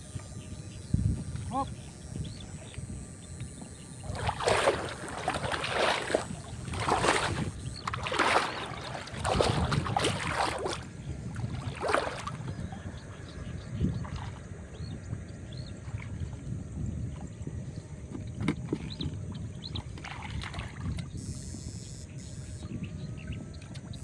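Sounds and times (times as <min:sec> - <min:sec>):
water splashing and sloshing: 0:03.9 - 0:21.3.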